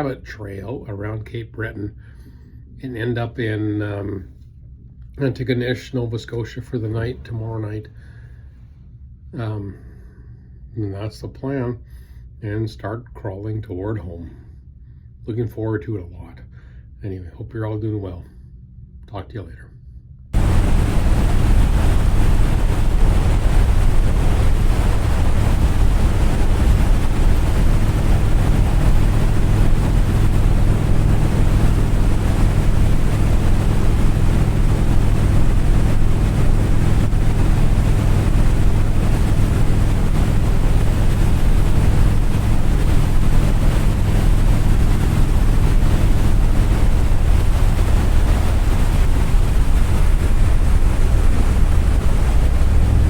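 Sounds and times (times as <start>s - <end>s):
loud engine rumble: 20.4s - 53.0s
wind buffeting microphone: 20.4s - 53.0s.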